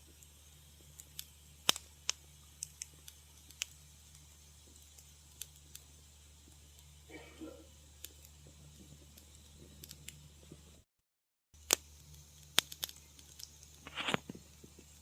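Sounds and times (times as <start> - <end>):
low steady hum: 0.0 - 10.8
wood fire crackling: 0.0 - 10.9, 11.6 - 15.0.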